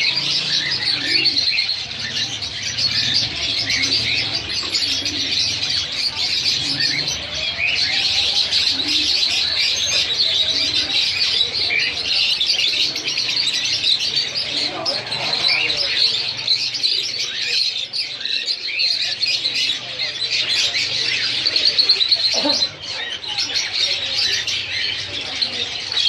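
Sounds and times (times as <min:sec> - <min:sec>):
budgerigars chattering and chirping: 0:00.0 - 0:26.0.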